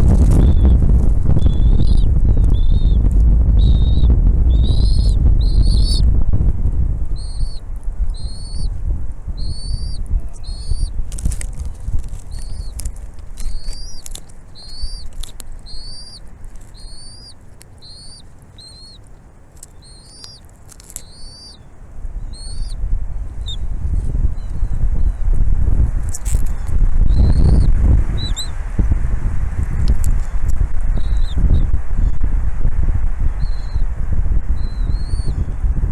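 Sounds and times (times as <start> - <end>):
wind rumble on microphone: 0.0 - 35.9
eagle high piping calls: 1.4 - 6.0, 7.2 - 8.7, 9.4 - 11.0, 12.3 - 12.8, 13.4 - 19.0, 19.7 - 20.4, 21.0 - 23.6, 33.4 - 33.8, 34.6 - 35.5.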